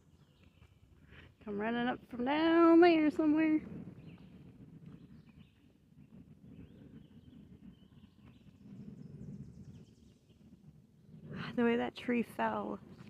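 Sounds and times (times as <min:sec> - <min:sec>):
birds chirping: 0:00.0 - 0:01.9, 0:02.6 - 0:10.5.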